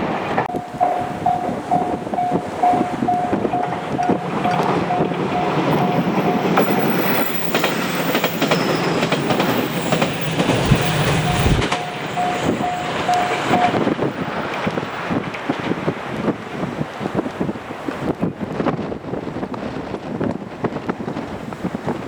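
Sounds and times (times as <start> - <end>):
train wheels clicking over rail joints: 0.3 - 18.8
crossing warning bell ringing: 0.5 - 15.4.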